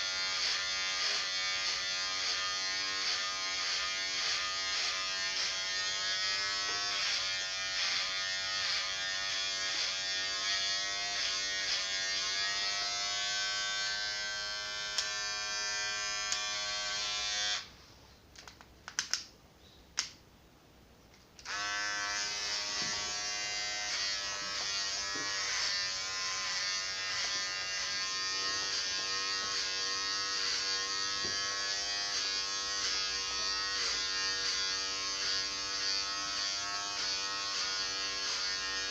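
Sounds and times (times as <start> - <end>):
electric clipper buzzing: 0.0 - 17.7, 21.4 - 38.9.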